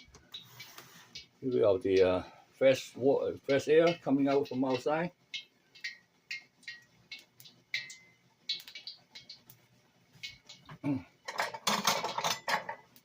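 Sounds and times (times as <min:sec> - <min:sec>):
kitchen items clicking and clattering: 0:10.3 - 0:13.0
kitchen items rattling: 0:11.3 - 0:12.9.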